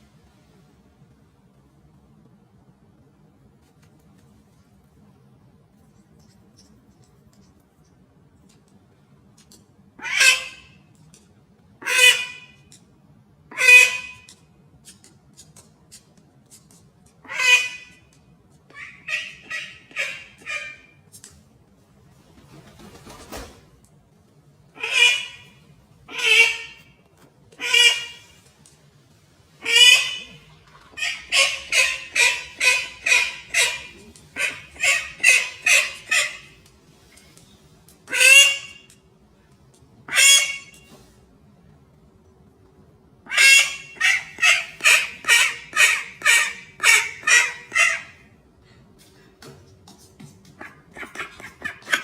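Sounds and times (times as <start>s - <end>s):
animal harsh calls: 24.8s - 26.9s, 29.6s - 36.6s, 43.3s - 48.3s
bird giving harsh calls: 29.6s - 36.6s.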